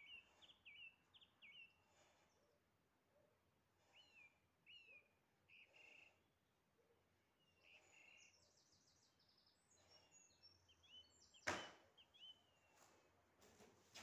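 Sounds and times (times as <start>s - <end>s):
faint birdsong: 0.0s - 14.0s
sharp thump: 11.5s - 11.8s.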